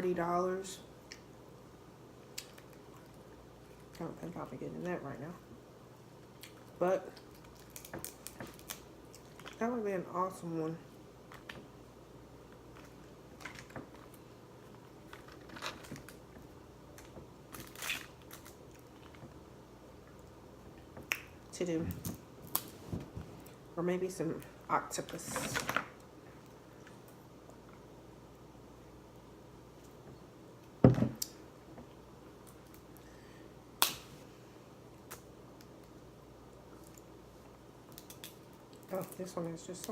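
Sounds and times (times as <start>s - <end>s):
crackle of shell: 2.2s - 4.0s, 6.3s - 9.6s, 12.5s - 16.3s, 16.9s - 19.3s, 37.8s - 39.2s
crab shells snapping: 6.4s - 9.6s, 33.8s - 34.1s, 37.9s - 39.2s.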